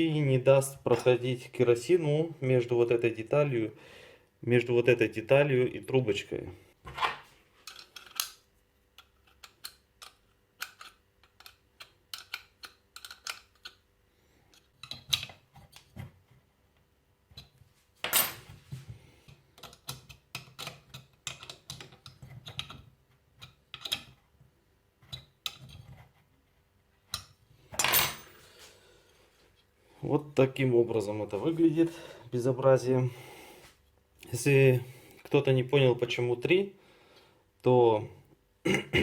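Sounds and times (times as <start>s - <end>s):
metal tools clinking: 27.8s - 28.4s.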